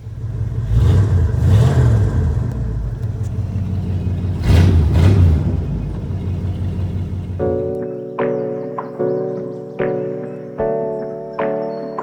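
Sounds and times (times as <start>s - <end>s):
truck engine rumbling: 0.0s - 7.8s.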